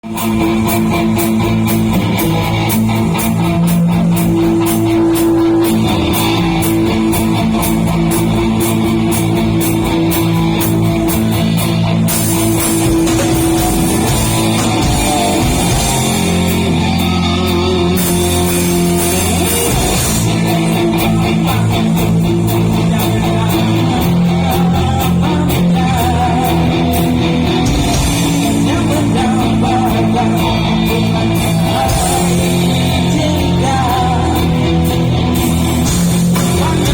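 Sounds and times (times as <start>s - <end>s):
drum kit beat on cymbals: 0.0s - 36.9s
electric guitar rock song: 0.0s - 36.9s.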